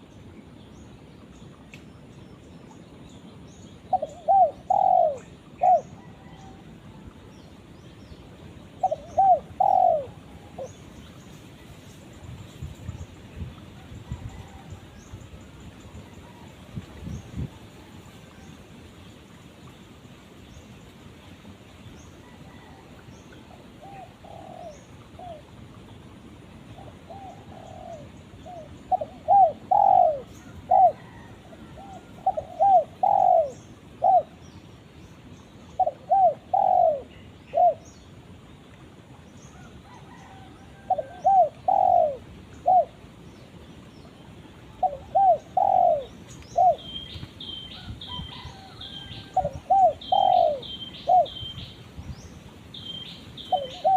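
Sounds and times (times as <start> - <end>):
dove cooing: 3.9 - 6.7, 8.8 - 10.8, 23.5 - 25.6, 26.7 - 34.4, 35.8 - 37.9, 39.6 - 43.1, 44.5 - 51.6, 53.4 - 53.9.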